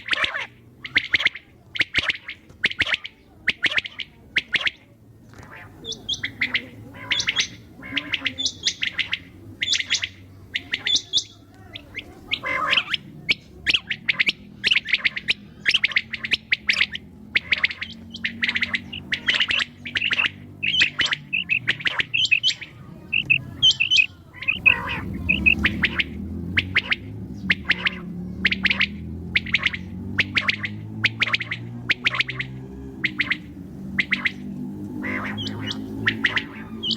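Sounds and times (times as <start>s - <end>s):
quail chirping: 0.0s - 36.9s.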